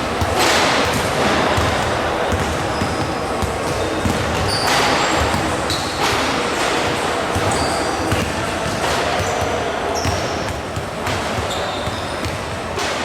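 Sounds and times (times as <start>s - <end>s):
crowd murmur: 0.0s - 13.0s
basketball dribbling: 0.1s - 6.1s, 6.7s - 12.7s
shoes squeaking on floor: 2.3s - 6.2s, 7.3s - 8.3s, 9.2s - 10.6s, 11.3s - 12.6s.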